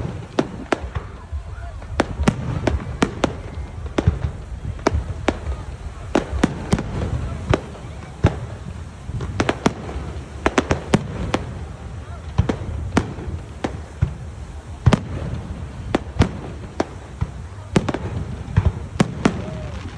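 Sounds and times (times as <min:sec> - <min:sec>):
continuous low rumble: 0:00.0 - 0:19.9
fireworks exploding: 0:00.0 - 0:19.9.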